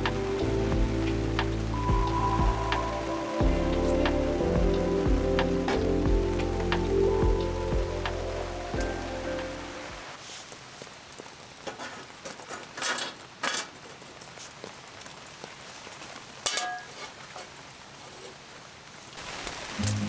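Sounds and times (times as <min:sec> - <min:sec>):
soft hiss: 0:00.0 - 0:10.9.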